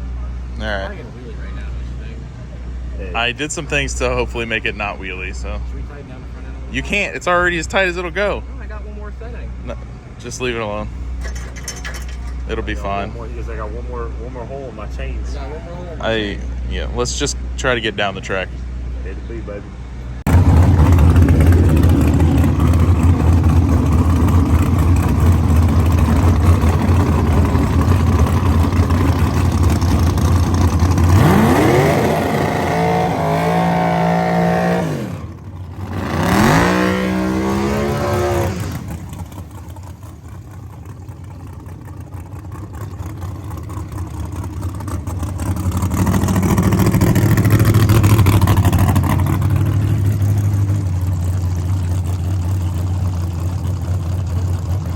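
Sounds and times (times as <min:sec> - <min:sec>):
drag race car engines revving: 0:16.4 - 0:54.9.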